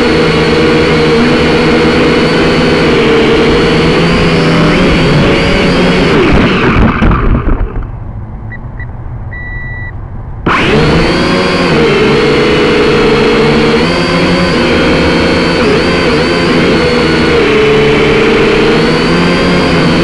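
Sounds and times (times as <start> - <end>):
drone motors whining: 0.0 - 20.0
wind rumble: 3.1 - 10.5
electronic beeps: 8.5 - 10.0.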